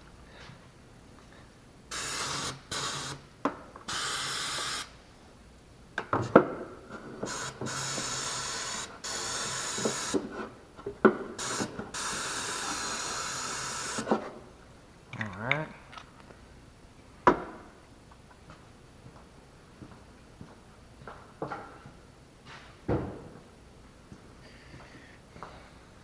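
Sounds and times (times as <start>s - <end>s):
hissing spray bursts: 1.9s - 3.2s, 3.9s - 4.9s, 7.3s - 10.3s, 11.4s - 14.1s.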